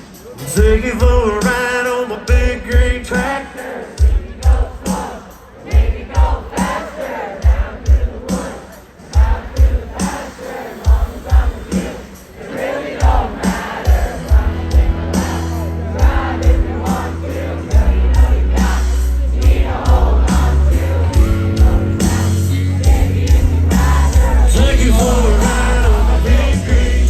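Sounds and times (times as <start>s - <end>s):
live country band playing: 0.0s - 3.4s, 13.1s - 27.0s
drum hits: 4.0s - 27.0s
person singing: 12.6s - 27.0s
heavy bass: 13.0s - 27.0s.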